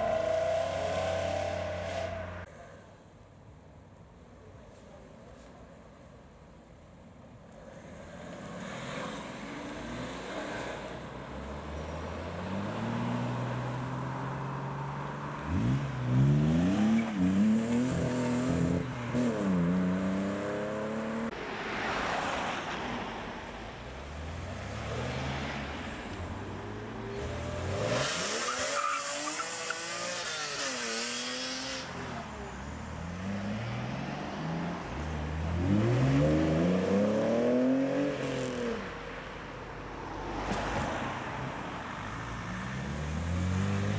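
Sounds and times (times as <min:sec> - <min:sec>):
car engines revving: 0:00.0 - 0:02.5, 0:07.7 - 0:43.9.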